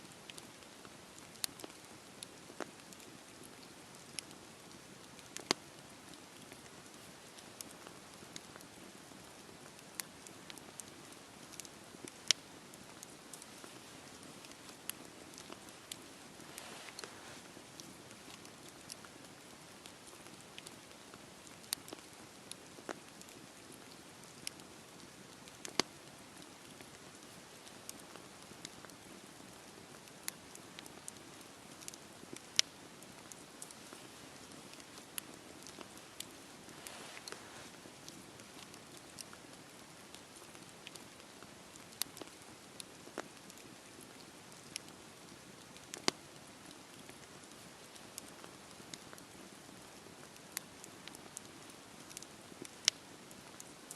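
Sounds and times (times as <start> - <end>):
steady rain hiss: 0.0 - 53.9
campfire pops and crackles: 0.2 - 53.8
rain hissing: 13.2 - 18.2, 33.7 - 38.6.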